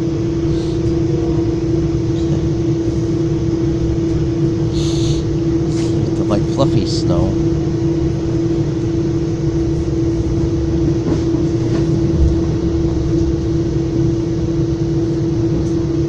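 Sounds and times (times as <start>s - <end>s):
constant hum: 0.0s - 16.0s
train rumbling along track: 0.0s - 16.0s.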